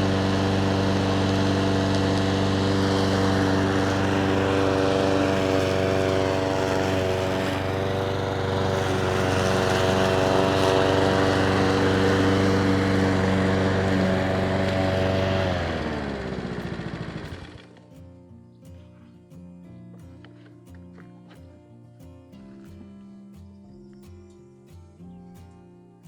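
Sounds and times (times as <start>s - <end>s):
lawn mower engine running: 0.0s - 18.6s.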